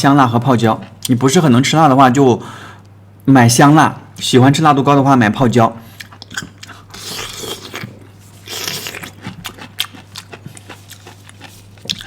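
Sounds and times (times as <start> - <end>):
crunchy chewing: 6.0 - 12.0.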